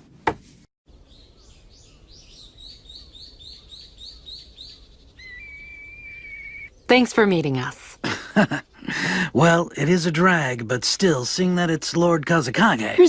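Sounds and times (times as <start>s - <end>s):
birds chirping: 0.9s - 10.7s
thin whistling bird call: 1.3s - 6.8s.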